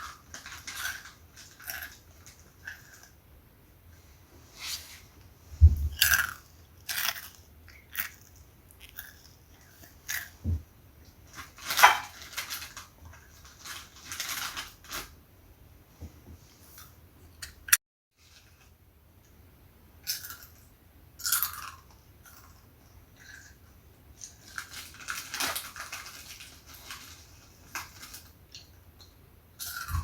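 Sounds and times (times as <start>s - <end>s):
person chewing crunchy snack: 5.9s - 10.4s, 21.2s - 22.6s.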